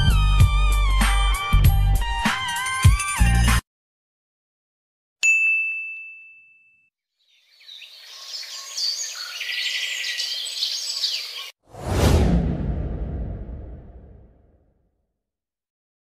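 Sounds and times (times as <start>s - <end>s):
bright ringing ding: 5.2s - 6.9s
birds chirping: 7.2s - 11.6s.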